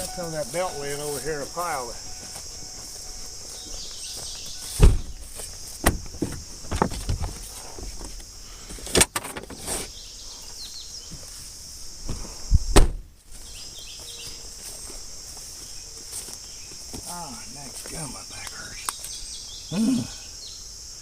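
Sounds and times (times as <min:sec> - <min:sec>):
crickets chirping: 0:00.0 - 0:21.0
knocks and thumps of objects handled: 0:04.8 - 0:08.2.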